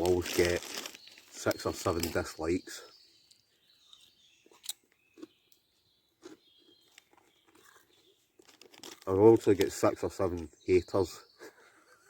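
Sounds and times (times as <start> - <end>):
person chewing crisps: 0.0 - 1.0, 4.6 - 5.4, 6.2 - 9.1.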